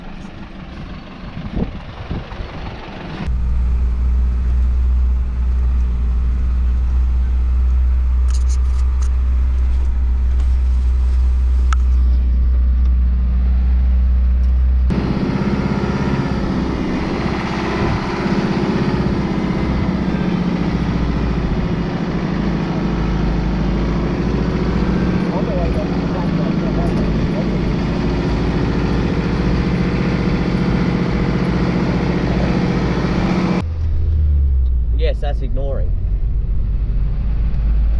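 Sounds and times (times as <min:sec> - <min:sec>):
truck engine and road drone: 0:00.0 - 0:37.9.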